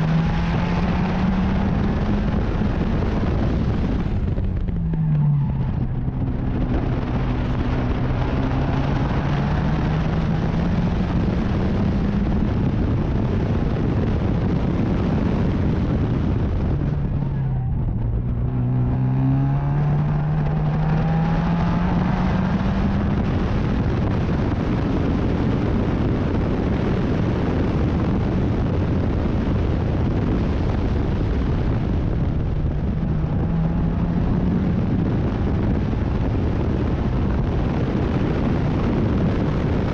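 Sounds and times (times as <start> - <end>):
racing car engine accelerating: 0.0 - 39.9
wind and road noise: 0.0 - 39.9.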